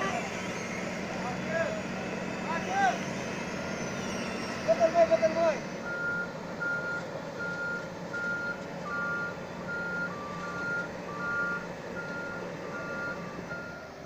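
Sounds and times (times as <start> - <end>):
lower-pitched reversing beeper: 0.0 - 14.0
vehicle engine noise: 0.0 - 14.0
high reversing alarm beeps: 5.8 - 13.9.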